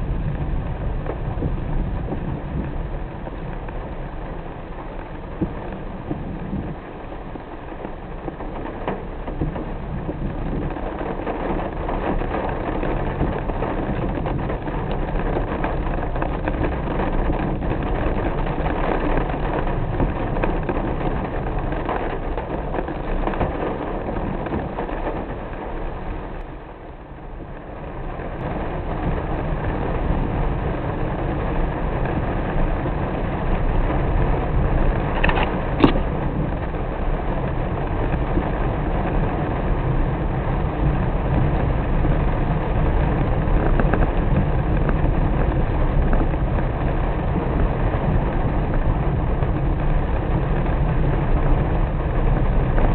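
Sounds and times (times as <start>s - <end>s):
car engine and tyre rumble: 0.0s - 52.9s
rain and wet road noise: 0.0s - 52.9s.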